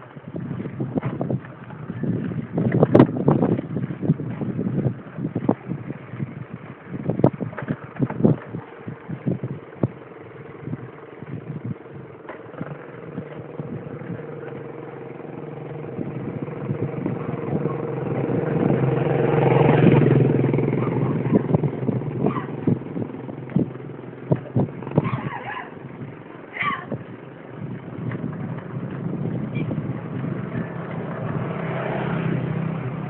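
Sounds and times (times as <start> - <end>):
bike rattling over rough ground: 0.0 - 33.0
vehicle engine passing: 9.1 - 33.0.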